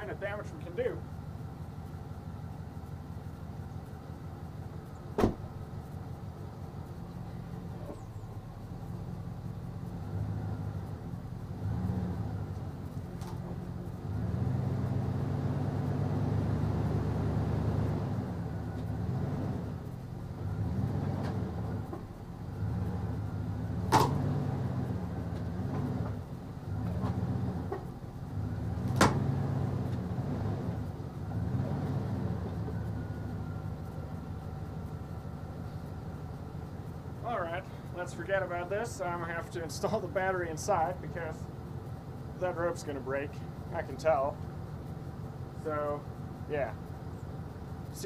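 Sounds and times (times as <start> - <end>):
car engine revving under load: 0.0 - 48.0
sharp knocks: 5.1 - 5.5.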